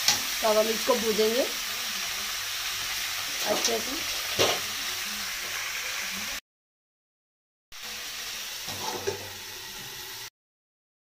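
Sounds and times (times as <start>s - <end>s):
meat and onions sizzling in oil: 0.0s - 6.4s, 7.7s - 10.3s
metal spatula scraping pan: 8.6s - 10.3s.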